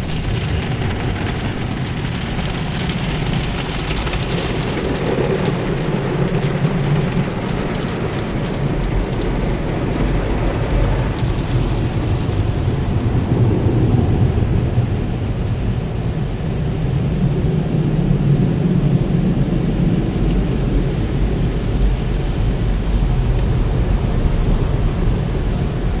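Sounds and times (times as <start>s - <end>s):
car wash spraying water: 0.0s - 17.3s.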